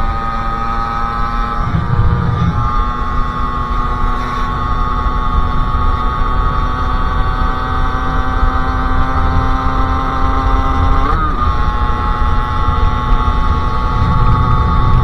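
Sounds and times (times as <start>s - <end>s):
heavy low rumble: 1.5s - 4.1s, 13.0s - 15.0s.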